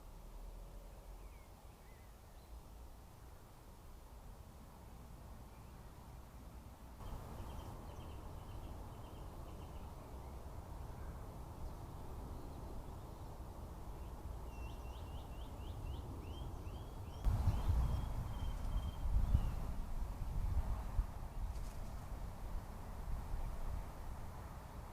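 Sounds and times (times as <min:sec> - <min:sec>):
small birds chirping: 0:07.0 - 0:19.9.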